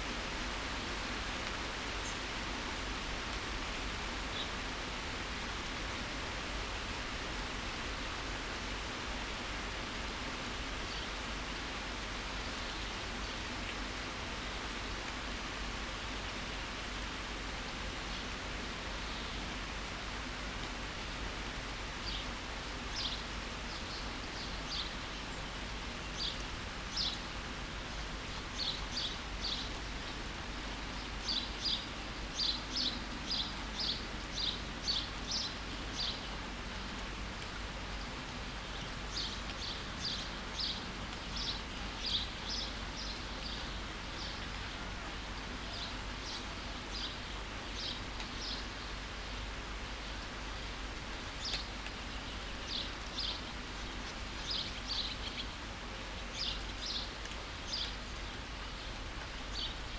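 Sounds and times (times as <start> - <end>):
steady rain: 0.0 - 59.9
songbird chirping: 22.0 - 36.4, 38.6 - 59.9.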